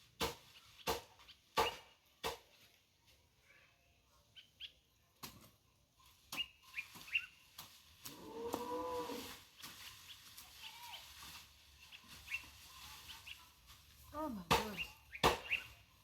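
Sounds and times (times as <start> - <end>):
hand hoe striking soil: 0.2 - 2.6, 14.4 - 15.7
birds chirping: 3.9 - 5.1, 6.0 - 7.6, 11.7 - 16.0
farm animal drawn-out call: 8.1 - 9.4.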